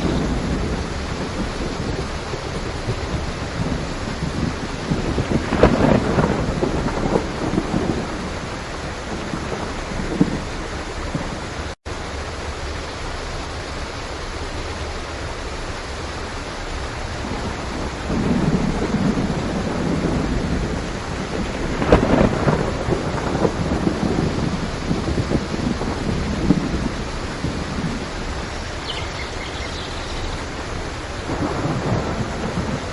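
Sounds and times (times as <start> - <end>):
thunder rumbling: 0.0 - 11.8, 16.8 - 32.9
heavy rain: 0.0 - 32.9
sharp thunder crack: 2.9 - 8.4, 17.4 - 28.0, 31.2 - 32.9.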